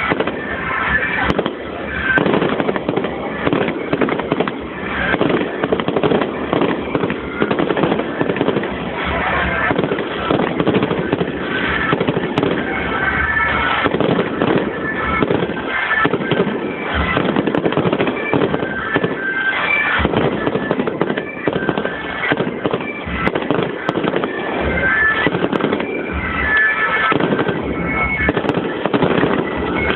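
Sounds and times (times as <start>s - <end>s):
fireworks bangs and crackling: 0.0s - 29.9s.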